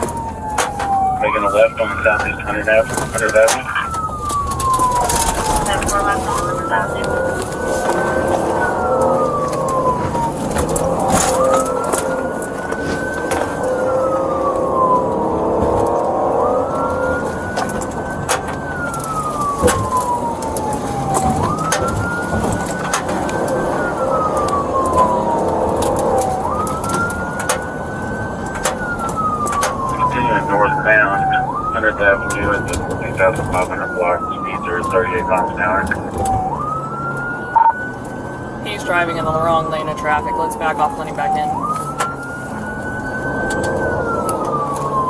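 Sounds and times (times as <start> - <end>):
police siren wailing: 0.0 - 45.0
vehicle and road noise: 0.0 - 45.0
scattered clicks: 3.0 - 6.6.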